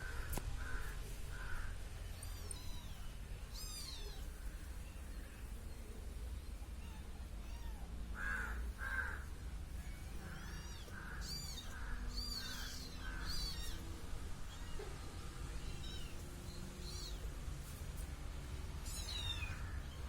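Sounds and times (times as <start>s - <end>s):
crow cawing: 0.1s - 1.7s, 8.2s - 9.3s, 10.2s - 13.6s
kitten meowing: 2.2s - 4.4s, 6.8s - 7.9s, 10.1s - 14.8s, 15.6s - 16.2s, 16.8s - 17.3s, 18.8s - 20.0s.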